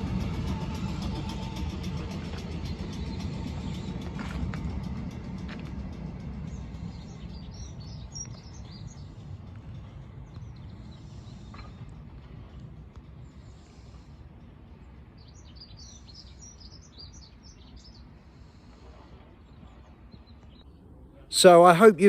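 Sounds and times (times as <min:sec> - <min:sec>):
low rumbling noise: 0:00.0 - 0:21.8
small birds chirping: 0:06.2 - 0:20.7.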